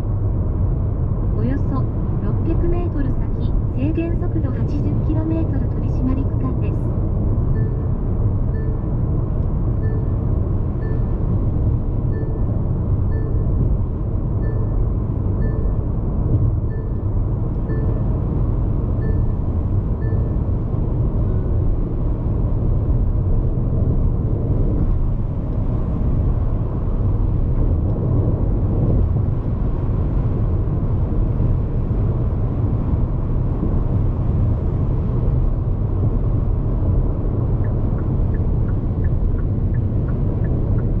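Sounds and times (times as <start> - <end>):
wind noise: 0.0 - 41.0
faint electronic tick: 15.4 - 18.0, 37.6 - 41.0.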